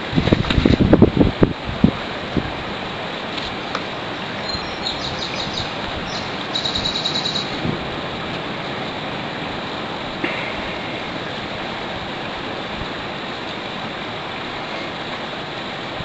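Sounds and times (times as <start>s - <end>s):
wind noise: 0.0s - 13.2s
small bird chirping: 4.4s - 7.6s.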